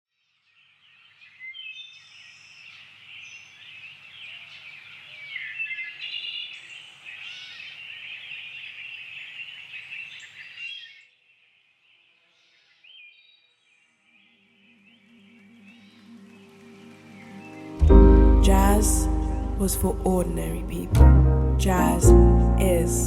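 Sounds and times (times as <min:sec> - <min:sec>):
faint bird chirps: 0:00.3 - 0:17.6
birds singing and chirping: 0:00.6 - 0:11.1, 0:11.9 - 0:17.8.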